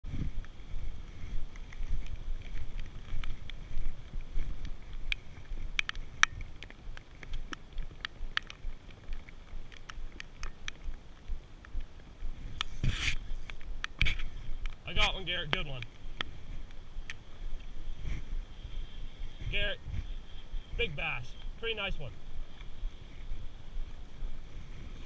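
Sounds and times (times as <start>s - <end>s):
wind buffeting microphone: 0.0s - 25.0s
sharp clicks: 4.6s - 11.9s.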